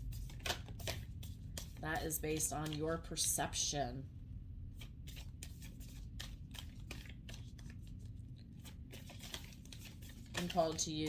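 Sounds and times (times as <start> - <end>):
cards being shuffled: 0.0 - 3.4, 4.8 - 11.0.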